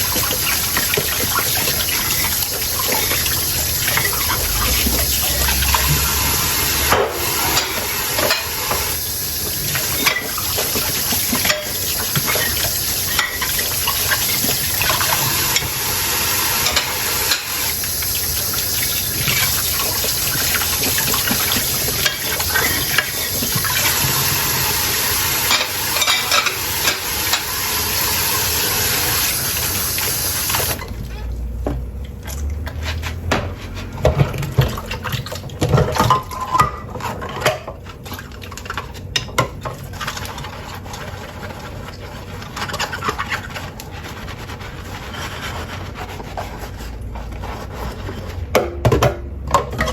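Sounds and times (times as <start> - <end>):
tap water running into sink: 0.0 - 36.4
dishes clinking: 2.8 - 8.9, 9.9 - 15.8, 25.4 - 27.5.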